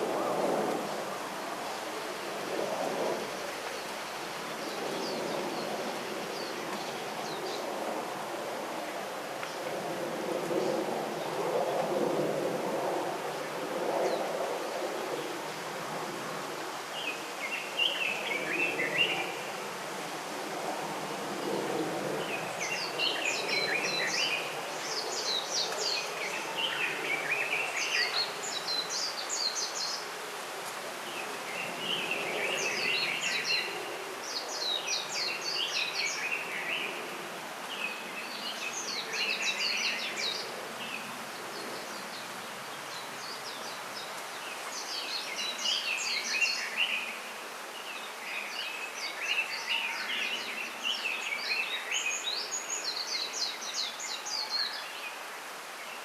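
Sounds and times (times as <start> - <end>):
background hiss: 0.0 - 56.0
songbirds twittering: 21.4 - 30.1, 31.0 - 56.0.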